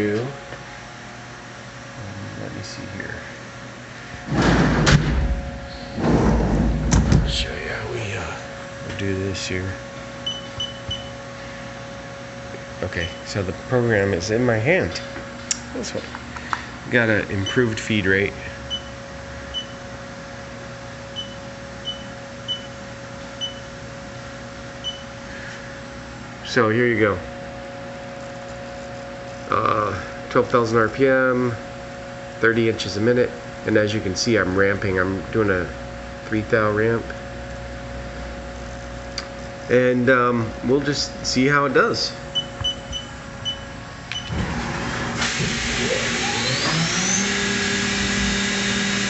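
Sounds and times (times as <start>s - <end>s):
steady machine hum: 0.0s - 49.0s
short machine beeps: 10.2s - 11.1s, 19.5s - 19.8s, 21.2s - 22.7s
spindle whine rising in pitch: 45.5s - 49.0s.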